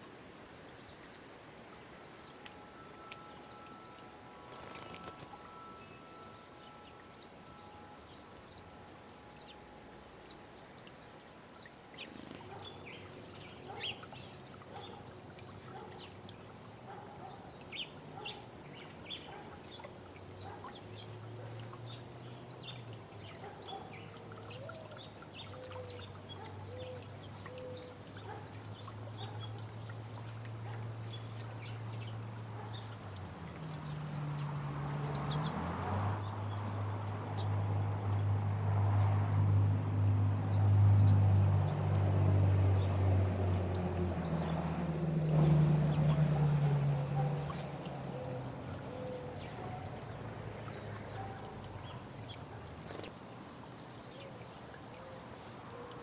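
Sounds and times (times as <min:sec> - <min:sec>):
birds chirping: 0:02.2 - 0:38.3, 0:45.4 - 0:53.2.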